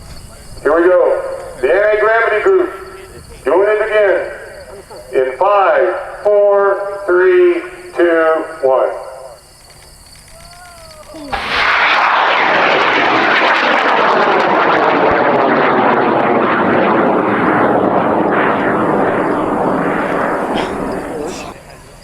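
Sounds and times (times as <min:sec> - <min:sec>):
rocket motors roaring: 0:09.7 - 0:21.6.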